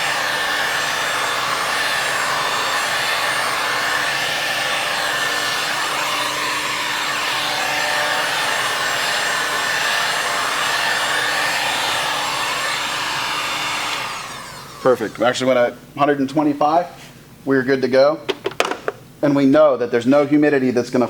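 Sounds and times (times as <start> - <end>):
heat gun blowing: 0.0 - 15.4.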